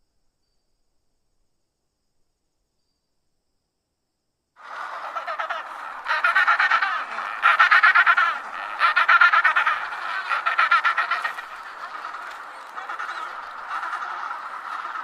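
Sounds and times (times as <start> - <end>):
penguins braying: 4.6 - 15.0.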